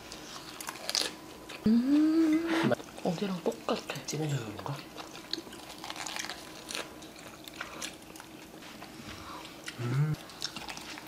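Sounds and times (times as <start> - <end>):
person chewing crunchy food: 0.0 - 1.6, 4.4 - 11.0
voiced hum: 0.0 - 11.0.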